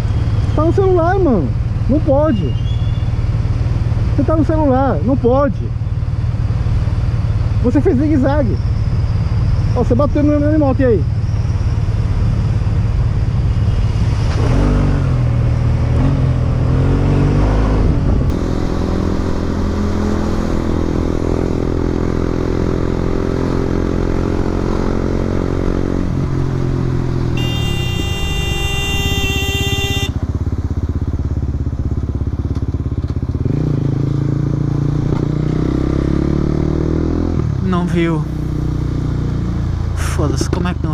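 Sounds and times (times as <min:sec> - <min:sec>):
wind noise: 0:17.0 - 0:23.4
motorcycle engine running: 0:18.1 - 0:40.9.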